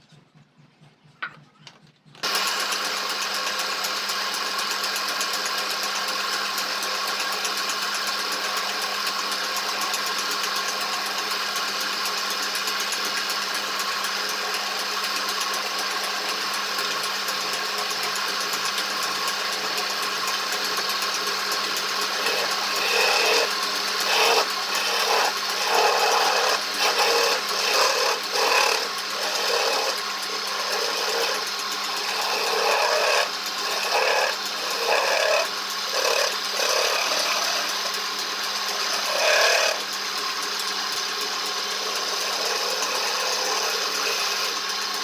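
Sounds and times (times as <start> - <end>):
electric power tool whining: 1.0 - 45.0.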